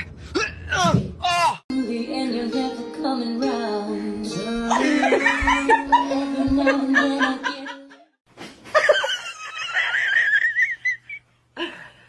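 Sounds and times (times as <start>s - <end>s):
person laughing: 4.7s - 8.0s.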